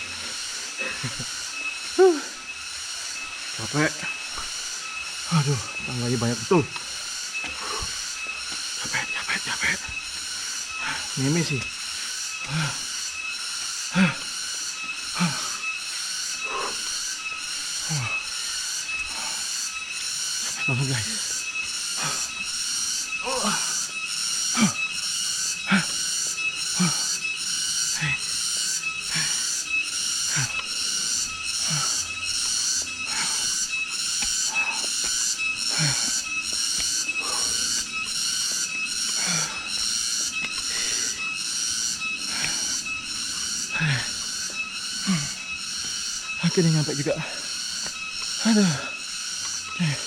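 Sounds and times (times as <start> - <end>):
cicadas buzzing: 0.0 - 50.0
man breathing hard and grunting: 7.5 - 8.1, 10.8 - 11.6, 12.4 - 13.0, 13.9 - 14.4, 15.1 - 15.7, 16.4 - 19.6, 20.4 - 22.5, 23.2 - 41.3, 42.3 - 47.5, 48.3 - 50.0.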